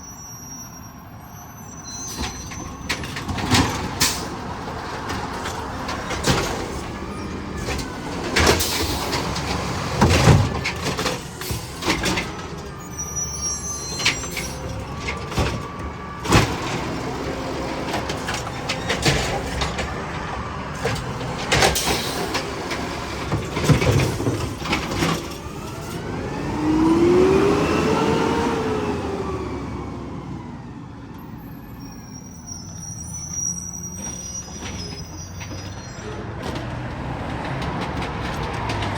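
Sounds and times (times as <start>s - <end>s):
garbage truck engine revving: 2.1s - 31.4s.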